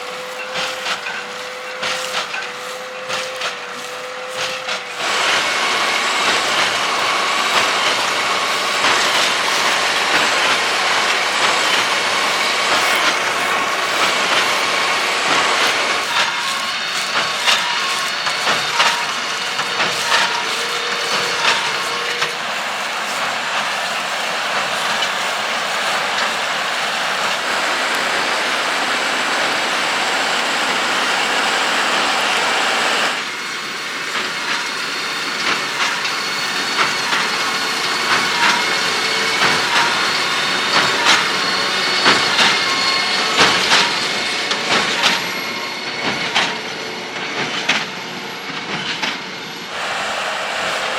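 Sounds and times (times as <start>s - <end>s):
baler mechanical clatter: 0.1s - 27.5s, 34.2s - 49.2s.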